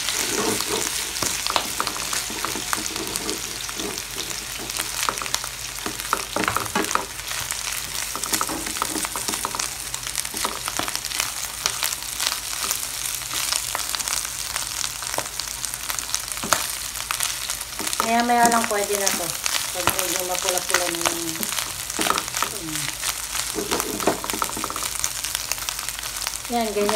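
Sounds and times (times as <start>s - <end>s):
spatula scraping a pan: 0.0s - 5.2s
meat sizzling in a pan: 0.0s - 26.9s.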